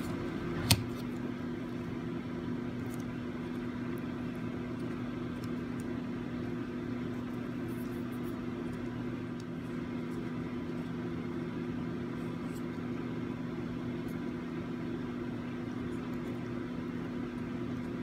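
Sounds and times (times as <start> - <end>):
mechanical hum: 0.0 - 18.0.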